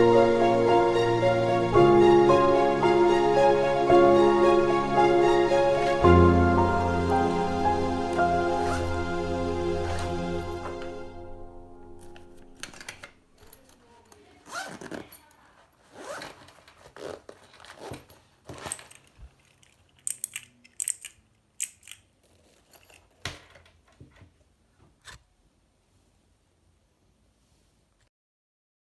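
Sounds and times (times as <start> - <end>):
plastic packaging rustling and tearing: 12.0 - 23.5.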